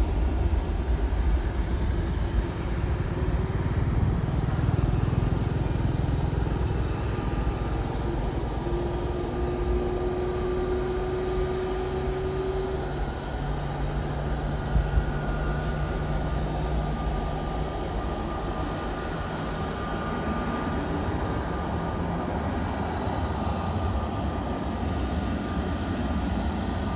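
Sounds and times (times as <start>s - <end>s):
jet engines rumbling: 0.0s - 26.9s.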